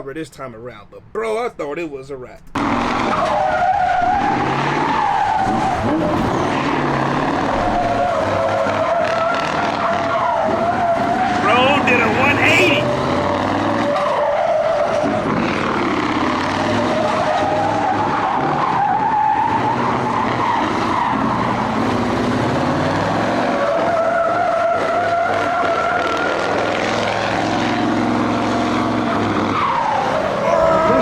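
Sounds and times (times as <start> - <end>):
tyres squealing: 2.6 - 13.0, 29.6 - 31.0
engine at high revs: 2.6 - 31.0.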